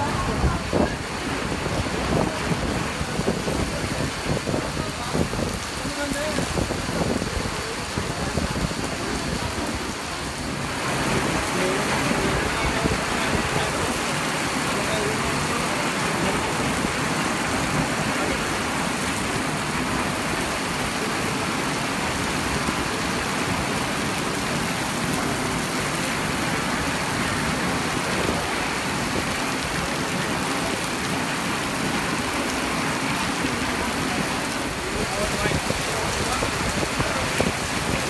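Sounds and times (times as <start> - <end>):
heavy rain pouring: 0.0 - 38.0.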